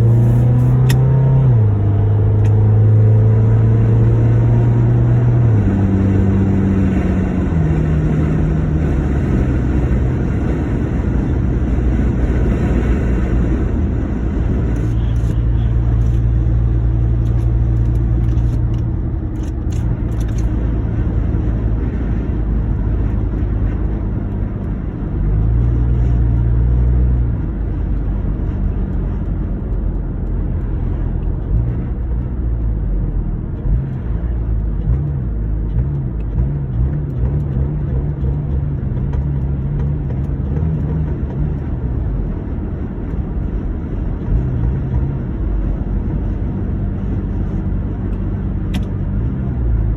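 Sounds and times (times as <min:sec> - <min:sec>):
car engine running unevenly: 0:00.0 - 0:25.8.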